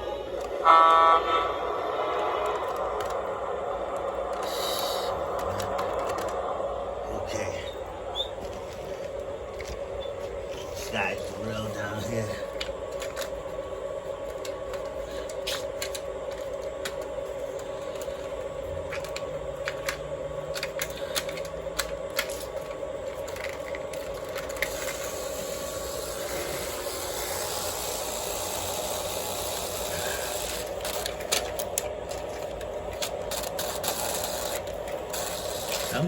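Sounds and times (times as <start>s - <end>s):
model train motor humming: 0.0s - 36.0s
wheels clicking over rail joints: 8.2s - 36.0s.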